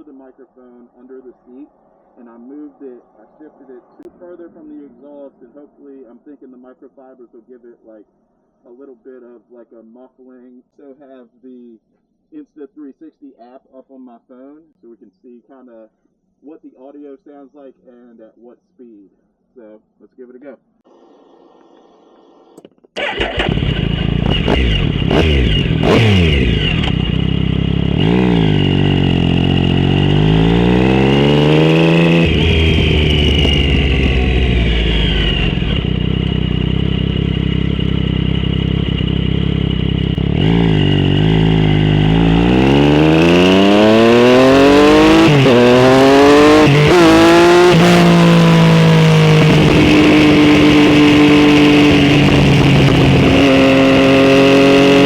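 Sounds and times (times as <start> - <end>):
motorcycle exhaust revving: 23.0 - 55.0
rattling vibration: 31.8 - 43.5.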